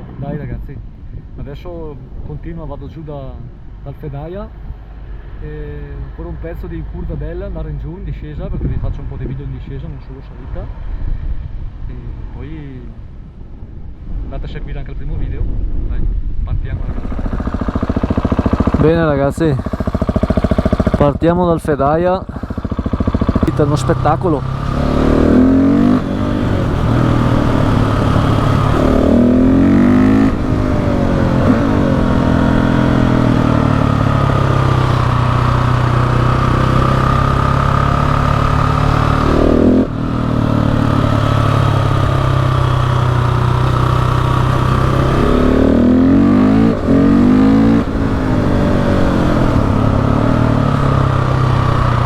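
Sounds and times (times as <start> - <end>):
motorcycle engine revving: 16.6 - 52.0.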